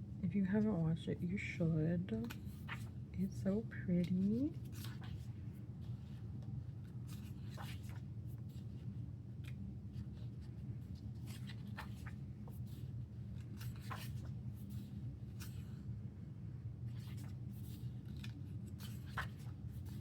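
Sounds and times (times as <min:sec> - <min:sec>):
low background hum: 0:00.0 - 0:20.0
paper pages rustling: 0:02.2 - 0:03.0, 0:04.0 - 0:15.8, 0:16.9 - 0:20.0.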